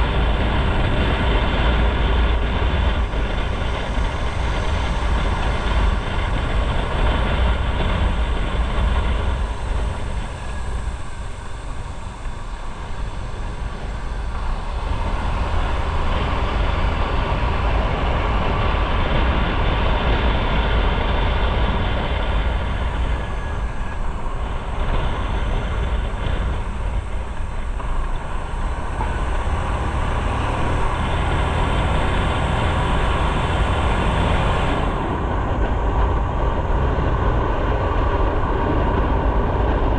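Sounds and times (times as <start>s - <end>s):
motorcycle engine running: 0.0s - 39.9s
wind on the microphone: 0.0s - 39.9s.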